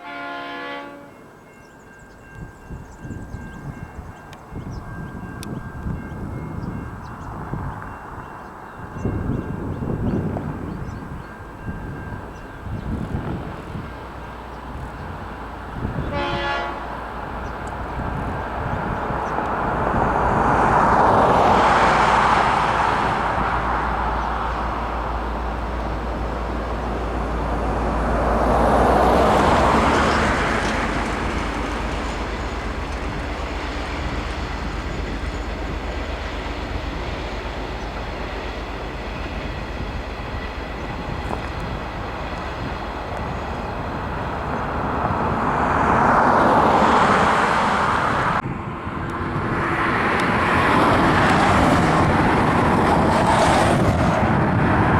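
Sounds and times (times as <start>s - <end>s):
train horn blast: 0.0s - 1.3s, 15.8s - 17.2s
passing train noise: 0.0s - 54.9s.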